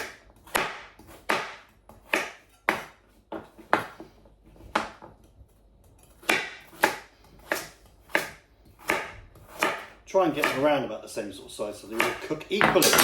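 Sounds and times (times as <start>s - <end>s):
knife chopping on board: 0.0s - 5.3s, 6.0s - 10.8s, 11.9s - 13.0s.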